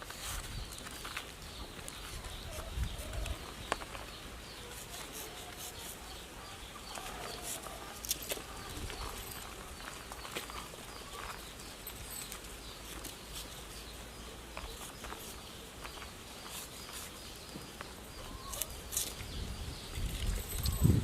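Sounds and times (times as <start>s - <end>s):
faint bird chirps: 0.3s - 21.0s.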